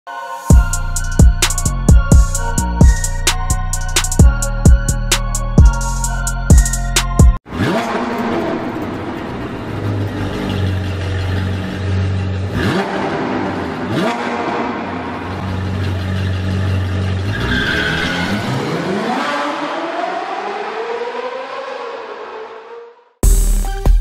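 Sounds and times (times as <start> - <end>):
sports car engine revving: 7.4 - 22.7.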